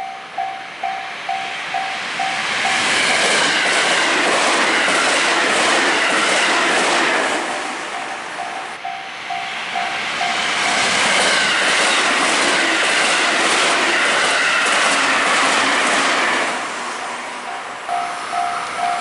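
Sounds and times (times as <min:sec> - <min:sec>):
train wheels clattering on rails: 0:00.8 - 0:16.6
level crossing bell dinging: 0:17.9 - 0:19.0.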